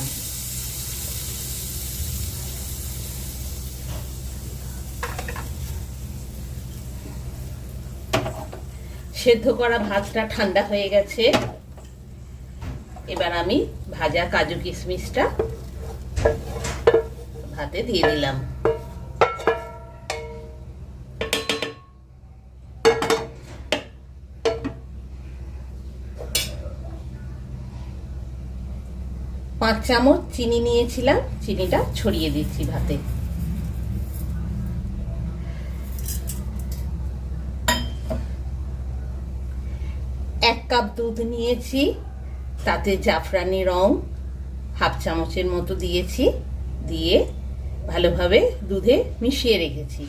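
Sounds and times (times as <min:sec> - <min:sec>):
nuts sizzling in a frying pan: 0:00.0 - 0:09.2
spoon clinking and scraping a pan: 0:18.0 - 0:20.5.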